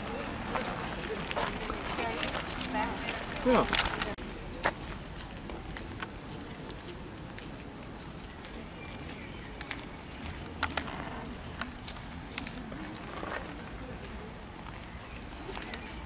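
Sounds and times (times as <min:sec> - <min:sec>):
steady outdoor hiss: 0:00.0 - 0:16.0
small birds chirping: 0:03.4 - 0:11.3.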